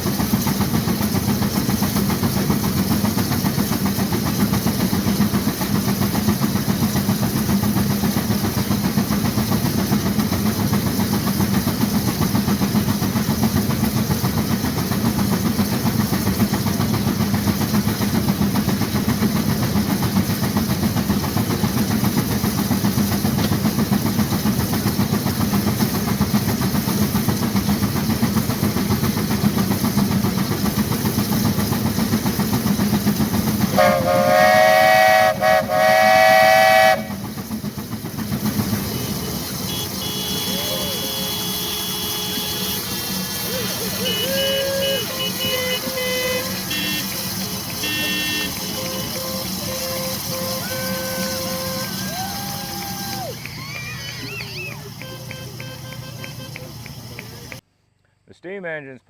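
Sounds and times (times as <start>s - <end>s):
steam engine exhaust rushing: 0.0s - 57.6s
steam whistle blowing: 33.7s - 37.2s, 38.9s - 57.3s.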